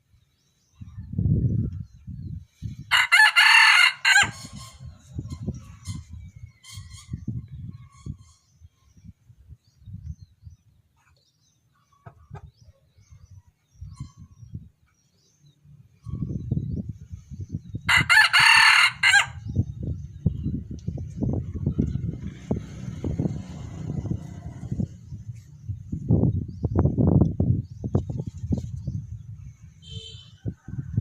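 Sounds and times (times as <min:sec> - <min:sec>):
rooster crowing: 0:02.9 - 0:04.5, 0:17.9 - 0:19.4
low rumbling noise: 0:19.0 - 0:29.9.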